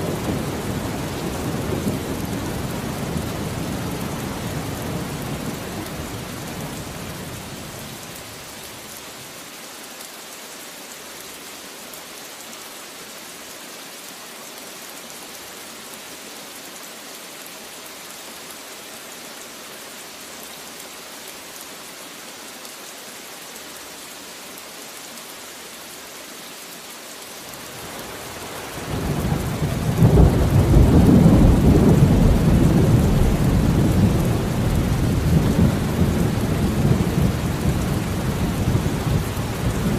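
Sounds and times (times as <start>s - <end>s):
steady rain: 0.0s - 39.9s
thunder rumbling: 28.9s - 39.9s.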